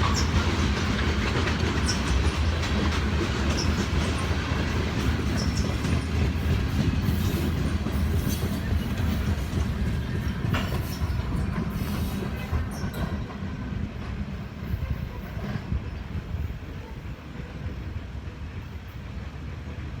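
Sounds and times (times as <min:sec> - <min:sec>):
wheels clicking over rail joints: 0:00.0 - 0:14.4
freight train rumbling past: 0:00.0 - 0:20.0.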